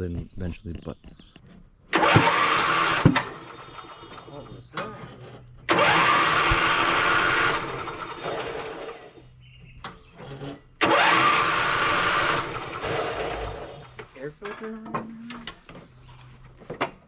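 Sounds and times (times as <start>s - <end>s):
electric starter cranking engine: 1.9s - 14.8s.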